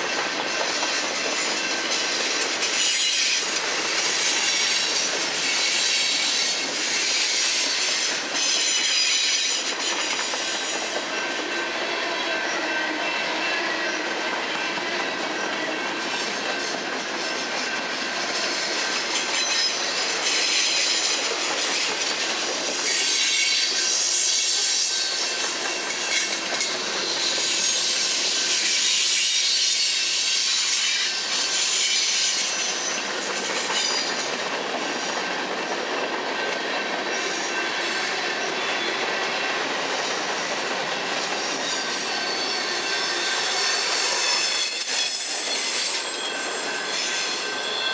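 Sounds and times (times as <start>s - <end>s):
steel wheels squealing: 0.0s - 47.9s.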